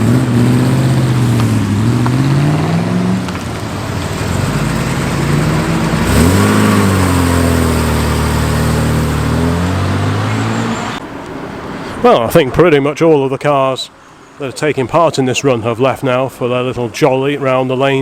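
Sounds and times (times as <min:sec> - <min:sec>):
car engines accelerating: 0:00.0 - 0:16.2.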